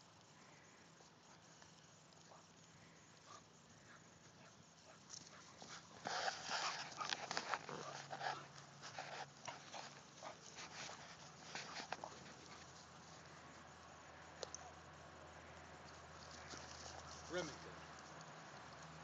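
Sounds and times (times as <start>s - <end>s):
small dog growling: 6.0s - 8.5s.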